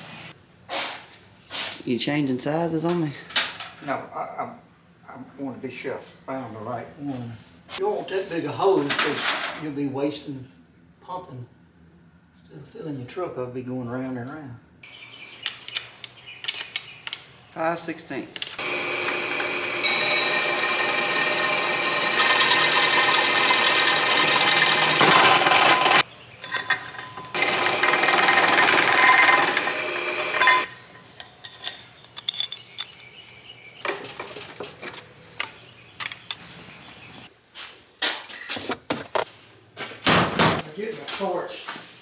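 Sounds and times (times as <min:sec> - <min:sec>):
power tool motor running: 0:18.6 - 0:26.1, 0:27.3 - 0:30.7
tools clicking and knocking: 0:31.2 - 0:33.1.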